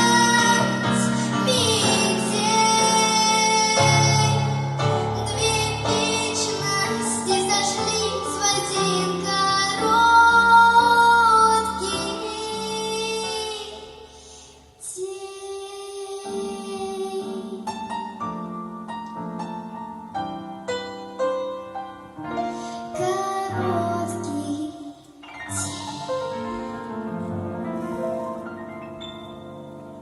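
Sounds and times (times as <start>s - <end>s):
girl singing: 0.0s - 18.2s, 22.8s - 26.7s
piano-like notes: 0.0s - 30.0s.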